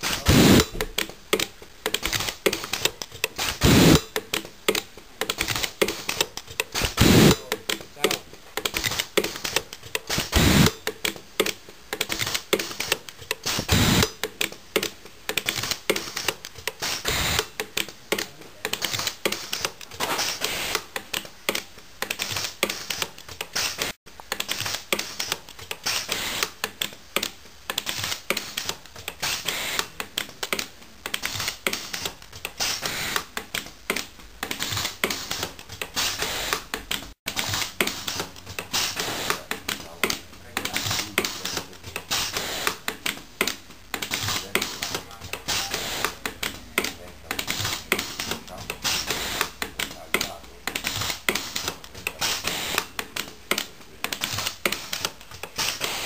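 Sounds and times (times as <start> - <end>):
pulsed welding arc snapping: 0.0 - 4.4, 5.2 - 11.1, 12.0 - 14.6, 15.3 - 17.9, 18.7 - 26.6, 31.1 - 43.2, 47.4 - 53.0.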